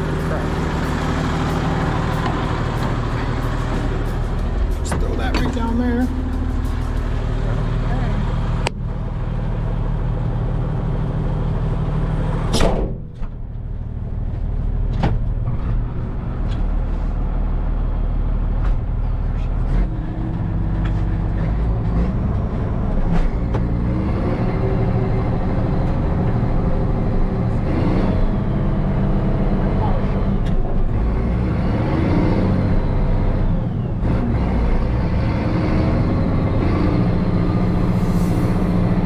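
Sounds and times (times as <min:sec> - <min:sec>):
tractor diesel engine running: 0:00.0 - 0:39.0
door slam: 0:12.5 - 0:13.4.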